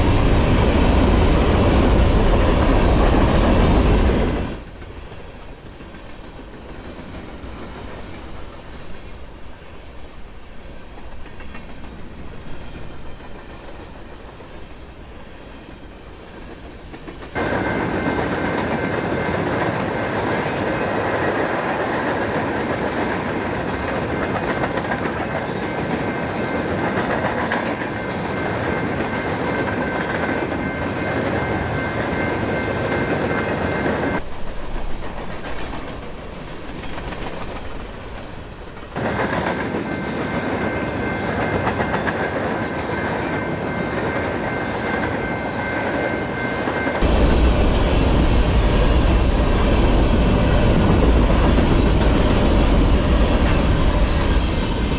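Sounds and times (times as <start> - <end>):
heavy low rumble: 0.0 - 4.6, 47.0 - 54.9
freight train wheels on rails: 0.0 - 54.9.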